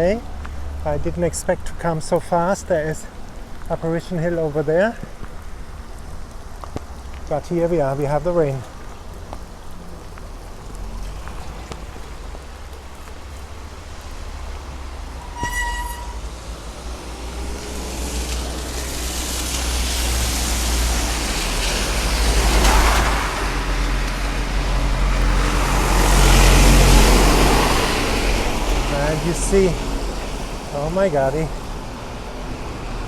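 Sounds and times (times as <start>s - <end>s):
rain shower: 0.0s - 33.0s
cars hissing past on wet road: 8.7s - 33.0s.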